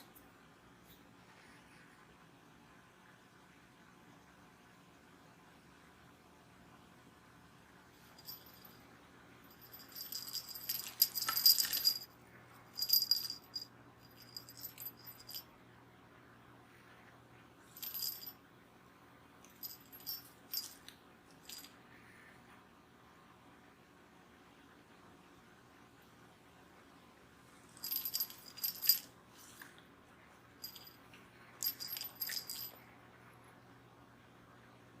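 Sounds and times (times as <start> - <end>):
cat toy jingling and rattling: 8.2 - 8.8, 9.5 - 12.1, 12.7 - 15.4, 17.7 - 18.3, 19.6 - 21.7, 27.8 - 29.1, 30.6 - 31.0, 31.6 - 32.8.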